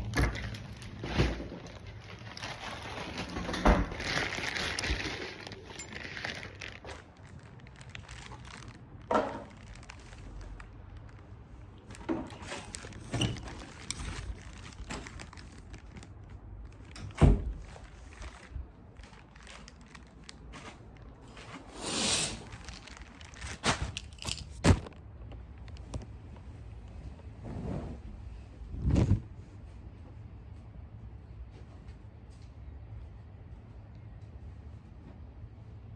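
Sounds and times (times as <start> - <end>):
objects being handled: 0.0 - 26.1.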